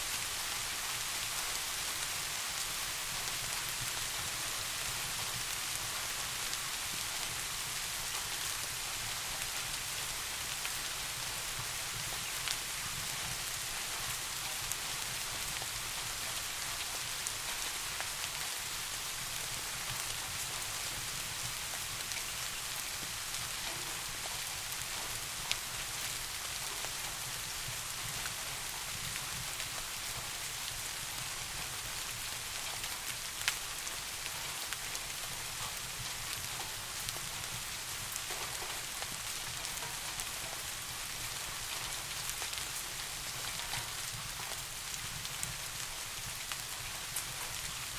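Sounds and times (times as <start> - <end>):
rain falling on a surface: 0.0 - 47.9.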